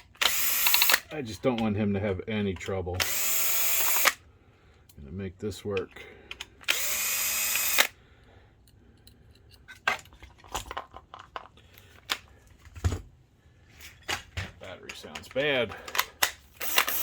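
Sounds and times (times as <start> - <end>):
electric screwdriver spinning: 0.2 - 1.1, 3.0 - 4.2, 6.6 - 8.0, 16.6 - 17.0.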